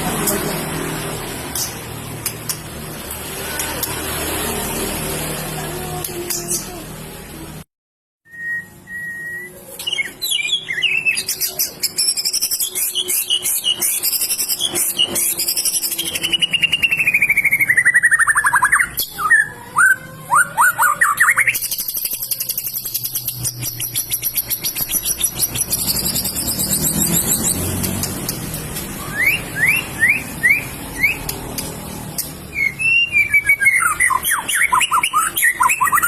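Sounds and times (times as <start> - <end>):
bird singing whistles and trills: 8.3 - 27.6, 29.0 - 31.3, 32.5 - 36.0.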